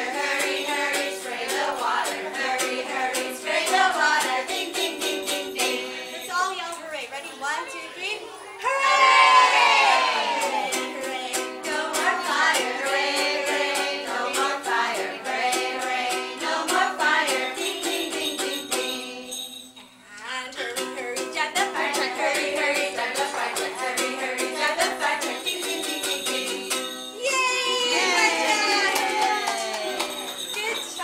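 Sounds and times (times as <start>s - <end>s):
person singing children's song: 0.0s - 6.3s, 9.9s - 27.0s
ukulele strumming: 0.0s - 6.4s, 9.8s - 19.4s, 20.6s - 27.1s.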